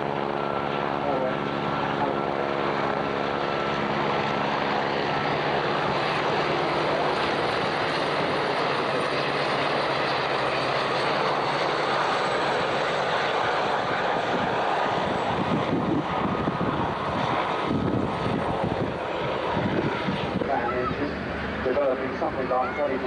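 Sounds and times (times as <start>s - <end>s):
aircraft engine rushing: 0.0s - 23.0s.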